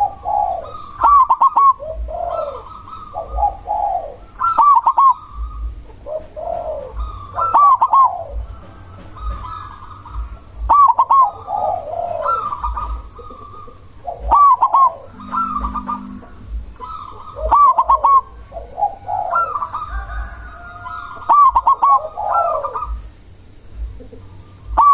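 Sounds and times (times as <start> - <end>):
dove cooing: 0.0 - 24.9
steady high-pitched whine: 0.0 - 24.9.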